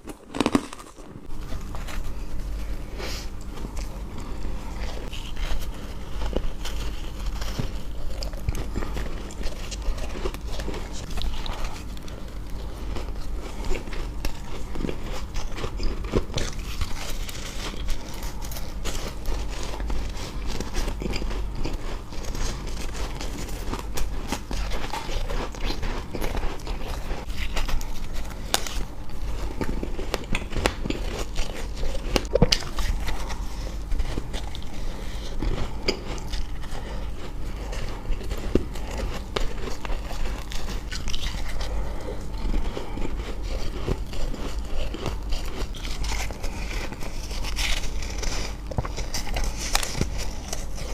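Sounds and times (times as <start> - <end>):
crunching and chewing ice: 0.0 - 50.9
steady low hum: 0.0 - 50.9.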